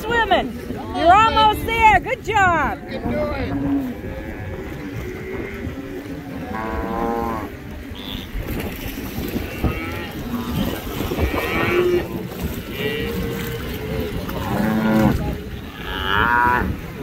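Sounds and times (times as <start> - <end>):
cattle mooing and bawling: 3.4 - 17.0.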